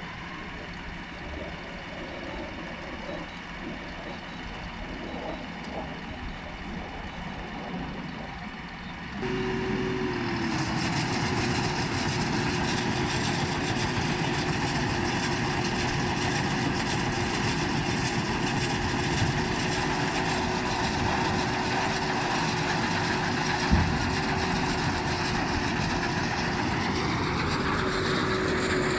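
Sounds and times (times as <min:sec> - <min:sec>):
tractor engine running: 0:00.0 - 0:28.9
high hum: 0:09.1 - 0:14.6.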